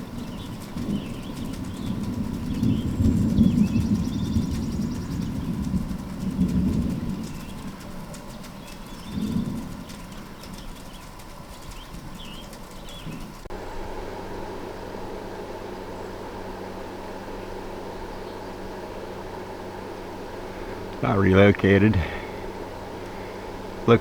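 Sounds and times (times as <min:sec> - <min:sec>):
distant thunder rumbling: 0:00.0 - 0:13.4
faint birds chirping: 0:00.0 - 0:13.5, 0:15.8 - 0:24.0.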